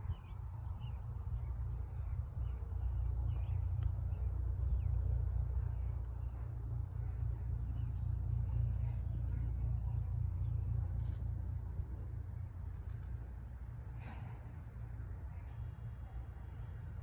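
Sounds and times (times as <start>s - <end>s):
small songbirds chirping: 0.0s - 13.2s
steady low rumble: 0.0s - 17.0s.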